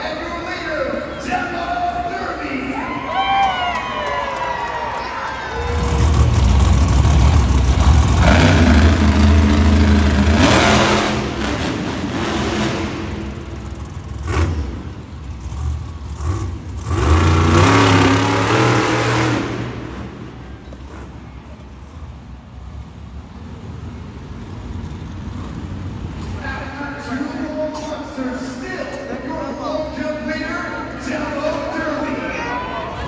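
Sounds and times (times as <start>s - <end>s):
monster truck engine revving: 0.0s - 33.0s.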